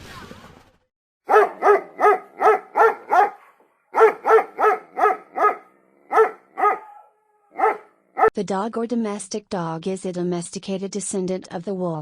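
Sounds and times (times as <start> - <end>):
dog barking: 1.3 - 8.3.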